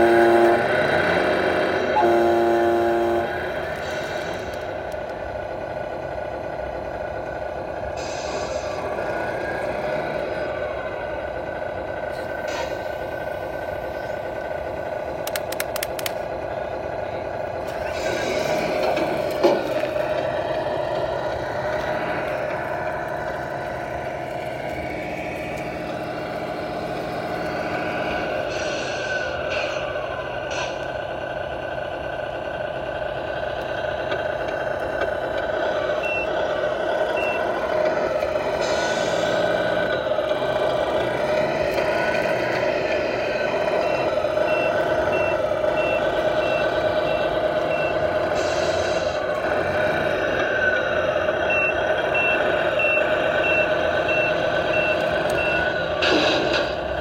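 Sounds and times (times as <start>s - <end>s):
engine running: 0.0s - 57.0s
vehicle back-up alarm beeping: 35.9s - 40.6s, 41.8s - 49.2s, 49.9s - 56.7s.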